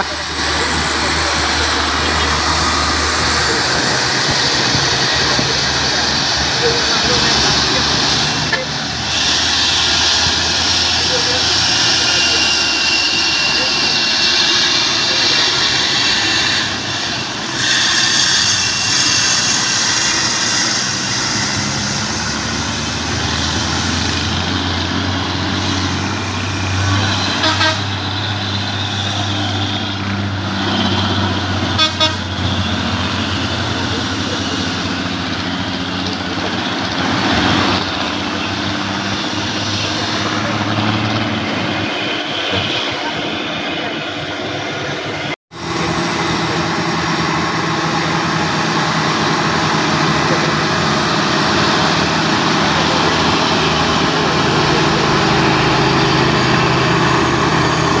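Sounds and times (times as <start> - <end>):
truck horn toots: 0.0 - 16.8, 26.6 - 35.2
truck diesel engine under load: 0.0 - 58.0.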